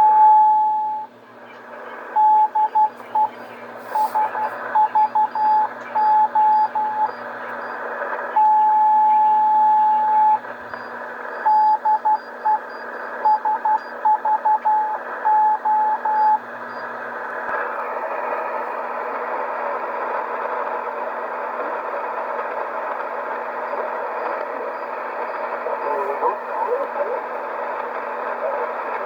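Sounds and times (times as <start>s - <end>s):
shortwave static hiss: 1.1s - 29.0s
morse code beeping tone: 2.2s - 3.4s, 4.0s - 7.8s, 8.4s - 10.4s, 11.4s - 16.4s.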